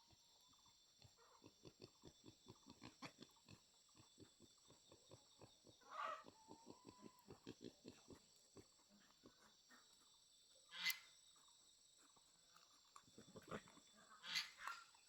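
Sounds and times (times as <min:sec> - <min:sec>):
pig grunting: 0:01.1 - 0:09.5, 0:13.2 - 0:14.9
pig squealing: 0:05.8 - 0:07.4, 0:14.2 - 0:14.8.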